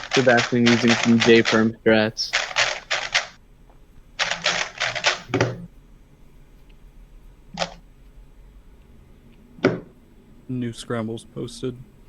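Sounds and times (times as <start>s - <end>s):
plastic puzzle cube clacking: 0.0s - 1.7s, 2.3s - 3.4s, 4.2s - 5.4s, 7.6s - 7.8s.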